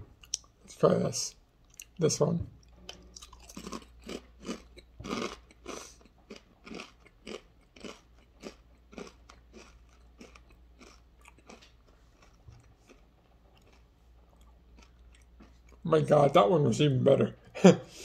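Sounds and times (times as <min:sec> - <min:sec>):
person crunching potato chip: 0:03.0 - 0:15.8.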